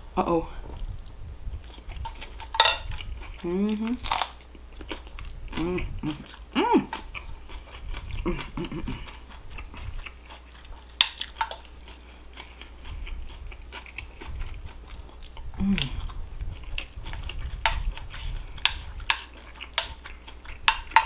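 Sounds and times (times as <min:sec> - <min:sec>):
chewing food: 0:00.6 - 0:21.0
person humming: 0:03.4 - 0:04.1, 0:05.5 - 0:07.0, 0:08.2 - 0:09.1, 0:15.6 - 0:16.1
crunching bites: 0:03.8 - 0:05.0.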